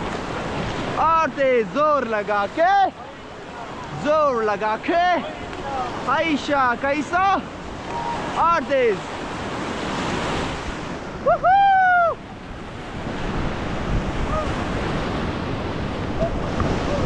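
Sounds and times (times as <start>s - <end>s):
whitewater rushing: 0.0s - 17.0s
wind buffeting microphone: 9.2s - 17.0s.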